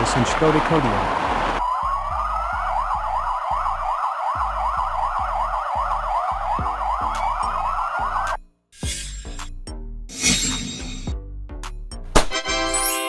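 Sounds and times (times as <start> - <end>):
police siren yelping: 0.0 - 8.4.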